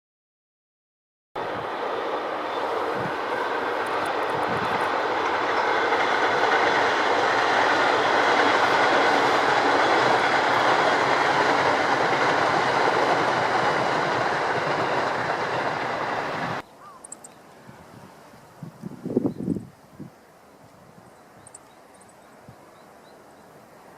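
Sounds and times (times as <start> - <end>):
train passing: 1.4 - 17.2, 20.2 - 23.9.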